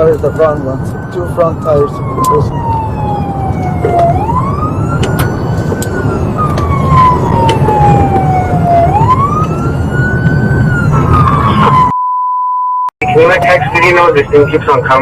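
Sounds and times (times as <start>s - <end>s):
vehicle driving rumble: 0.0s - 11.9s
siren wailing: 0.0s - 12.0s, 13.0s - 15.0s.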